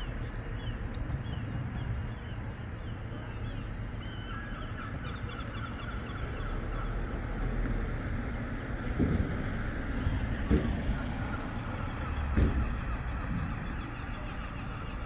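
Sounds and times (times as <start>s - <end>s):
flock of birds calling: 0.0s - 7.4s, 10.6s - 15.0s.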